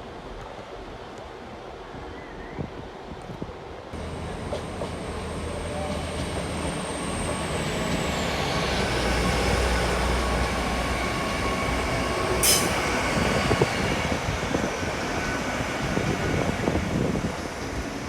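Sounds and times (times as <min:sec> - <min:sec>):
train rumbling on track: 0:00.1 - 0:18.0
sharp metal clank: 0:12.4 - 0:12.9
high thin squeal: 0:12.4 - 0:13.0.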